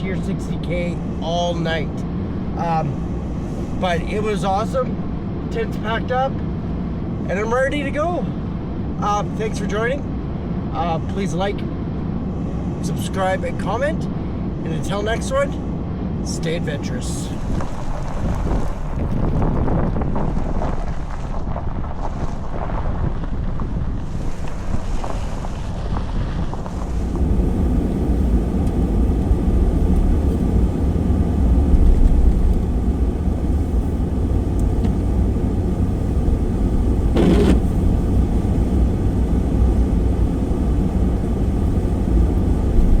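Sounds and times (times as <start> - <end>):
vehicle rumble with road noise: 0.0 - 43.0
wind on microphone: 17.0 - 43.0.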